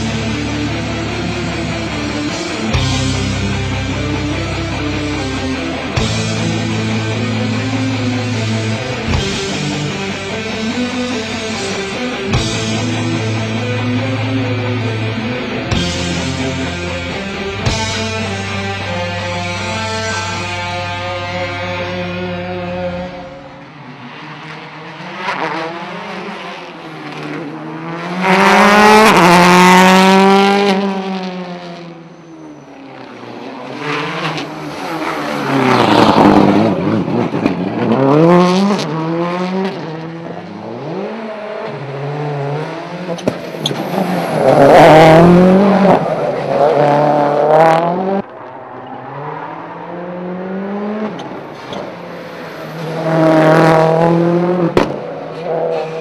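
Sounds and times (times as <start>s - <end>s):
rally car engines revving past: 0.0s - 56.0s
tyre squeal: 32.1s - 33.1s.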